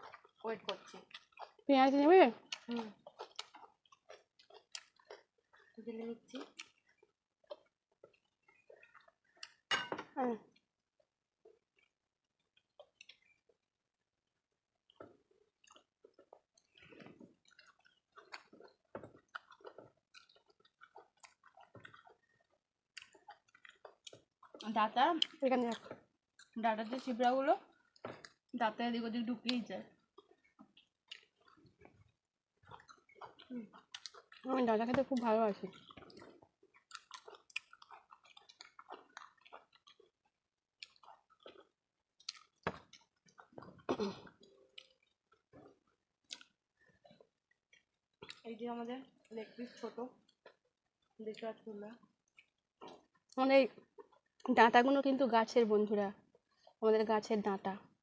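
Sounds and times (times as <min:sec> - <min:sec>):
people chewing food: 0:00.0 - 0:58.0.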